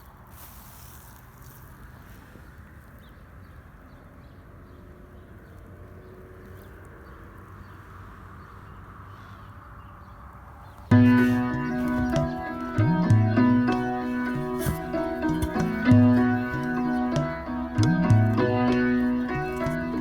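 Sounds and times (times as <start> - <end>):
faint hiss: 0.0 - 2.9.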